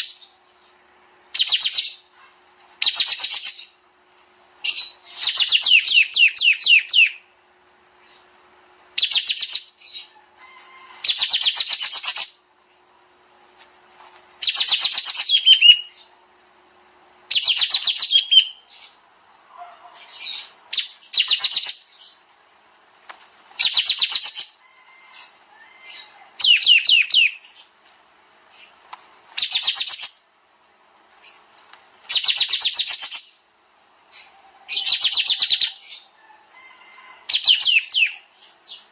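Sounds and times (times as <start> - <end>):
songbird trilling: 1.3 - 2.1, 2.8 - 3.8, 4.6 - 7.3, 9.0 - 10.1, 10.7 - 12.4, 13.2 - 16.1, 17.3 - 19.0, 19.8 - 22.2, 23.6 - 27.8, 29.4 - 30.3, 32.1 - 33.5, 34.1 - 36.2, 37.3 - 38.9.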